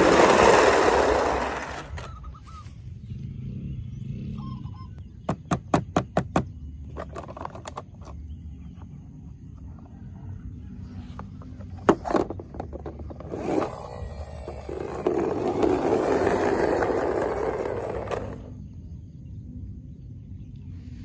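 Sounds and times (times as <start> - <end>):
toy vehicle clicks: 0.0 - 2.2, 12.0 - 18.6
toy wheels scraping and rolling: 0.0 - 2.4, 6.9 - 8.2, 11.0 - 18.6.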